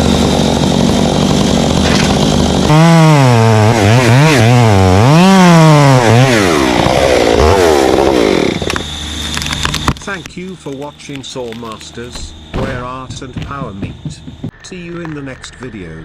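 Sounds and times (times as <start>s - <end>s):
chainsaw engine revving: 0.0s - 8.9s.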